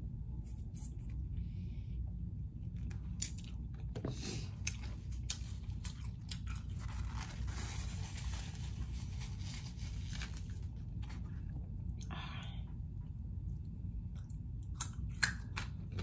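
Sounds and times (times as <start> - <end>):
low hum: 0.0 - 16.0
chewing with crunches: 4.5 - 7.5, 13.4 - 16.0.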